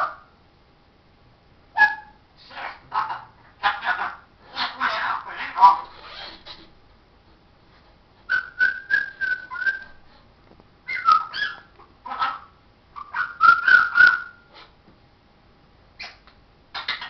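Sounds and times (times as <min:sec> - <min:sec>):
parrot whistling and chattering: 0:01.8 - 0:06.7, 0:08.3 - 0:10.0, 0:10.9 - 0:14.7, 0:16.0 - 0:17.0.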